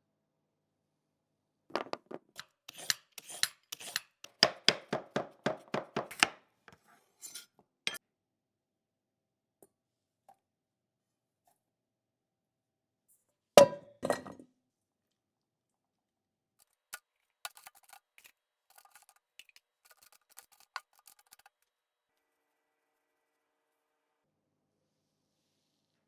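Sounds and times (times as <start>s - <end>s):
sharp kitchenware knocks: 13.6s - 14.4s.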